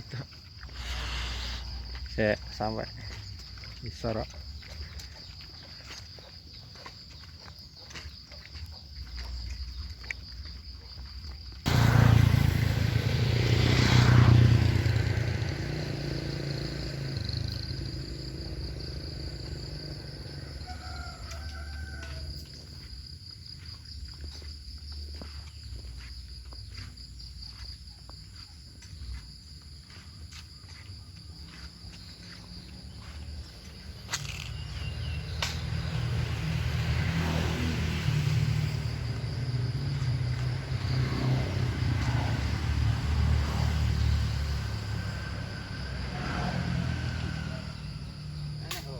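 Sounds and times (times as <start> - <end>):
high insect drone: 0.0 - 48.9
motor vehicle rumbling past: 11.6 - 22.8, 31.7 - 48.7.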